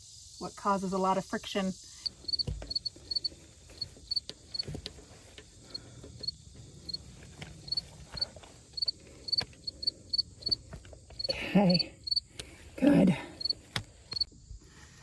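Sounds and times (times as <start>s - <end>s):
insects chirping: 0.0s - 15.0s
handling clicks and taps: 2.3s - 9.7s, 10.3s - 11.3s.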